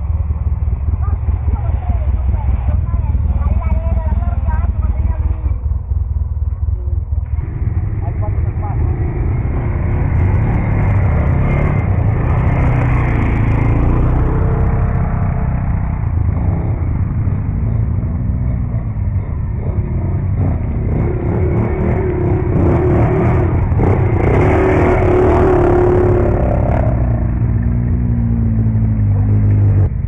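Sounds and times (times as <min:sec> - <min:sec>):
quad bike engine revving: 0:07.2 - 0:30.0.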